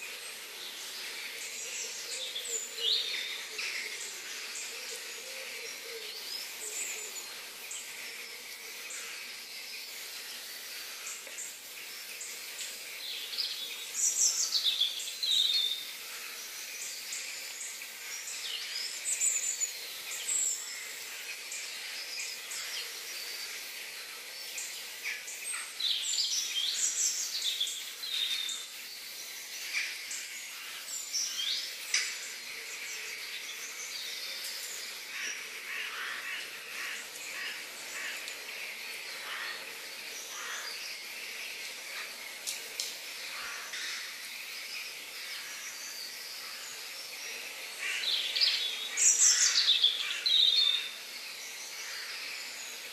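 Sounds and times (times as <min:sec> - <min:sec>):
steady high hiss: 0:00.0 - 0:52.9
birds chirping and calling: 0:24.5 - 0:52.9.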